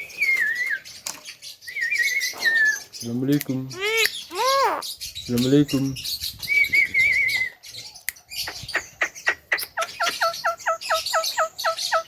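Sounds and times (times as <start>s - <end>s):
myna calling: 3.6s - 5.1s.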